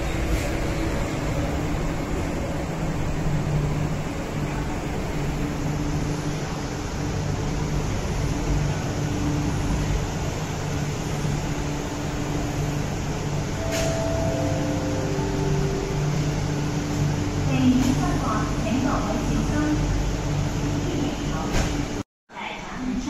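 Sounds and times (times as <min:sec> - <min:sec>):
train rumbling away: 0:00.0 - 0:22.0
descending three-tone chime: 0:13.6 - 0:17.2.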